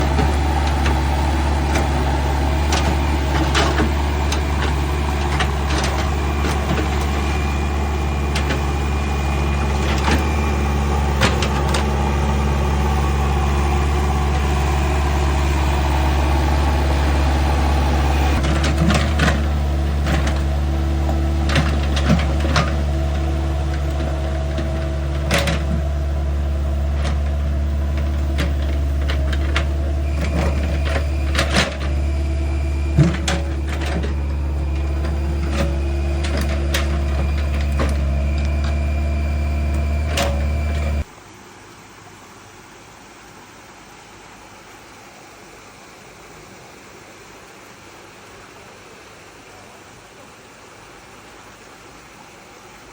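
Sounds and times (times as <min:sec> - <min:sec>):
engine running steadily: 0:00.0 - 0:41.1.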